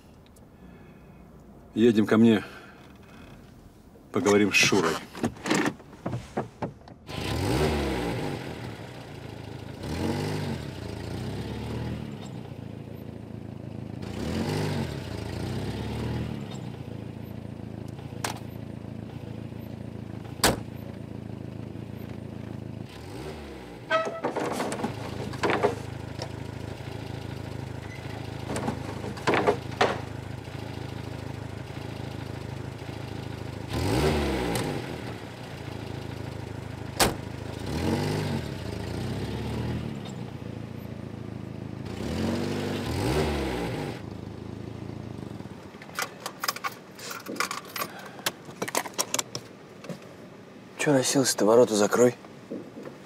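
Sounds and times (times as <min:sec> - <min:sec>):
car engine idling and revving: 0:00.0 - 0:50.9
clicks of keys and door: 0:45.8 - 0:49.5.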